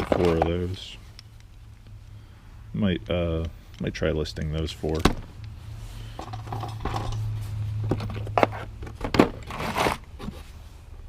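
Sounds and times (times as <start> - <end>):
small objects rustling: 0.0 - 1.1
low steady hum: 0.0 - 11.0.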